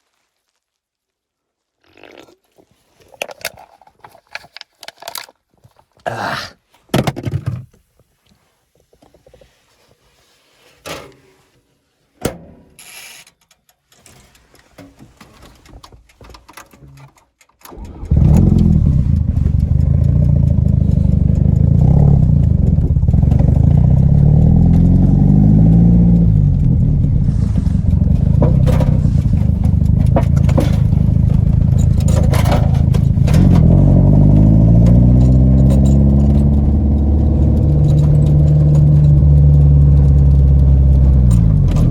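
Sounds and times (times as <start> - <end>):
faint clicks and knocks: 13.2 - 41.9
car engine starting and revving: 17.7 - 41.9.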